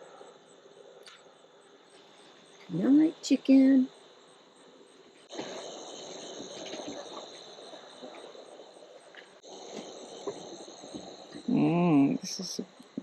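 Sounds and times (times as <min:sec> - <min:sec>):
insects trilling: 0:00.0 - 0:13.0
low rustling noise: 0:04.7 - 0:13.0.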